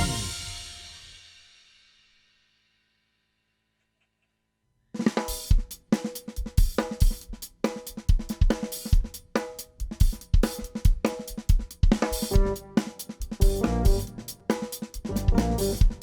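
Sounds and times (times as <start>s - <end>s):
pitched instruments holding notes: 0.0s - 0.8s
snare drum: 0.0s - 1.2s, 5.1s - 16.0s
cymbals: 0.0s - 2.1s.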